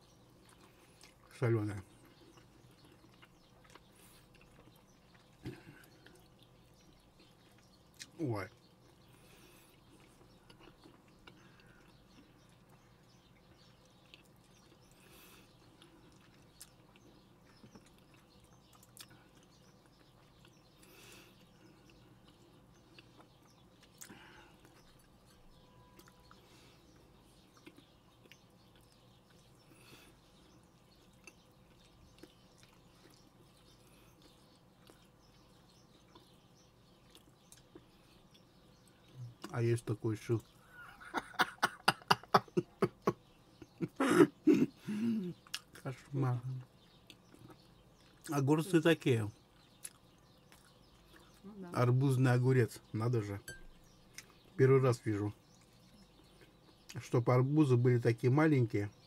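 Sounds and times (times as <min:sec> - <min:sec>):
person chewing: 0:00.2 - 0:01.3, 0:01.9 - 0:39.5, 0:45.4 - 0:45.8, 0:46.6 - 0:48.3, 0:49.5 - 0:51.4, 0:53.6 - 0:54.5
soft mouth clicks and smacks: 0:00.4 - 0:01.3, 0:02.0 - 0:25.4, 0:26.0 - 0:29.6, 0:30.8 - 0:35.2, 0:37.0 - 0:39.6, 0:45.4 - 0:45.8, 0:49.6 - 0:51.5, 0:54.1 - 0:54.5.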